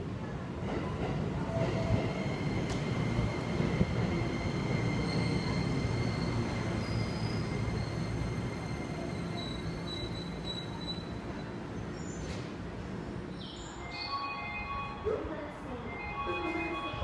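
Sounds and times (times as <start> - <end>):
train wheels rumbling on rails: 0.0 - 13.3.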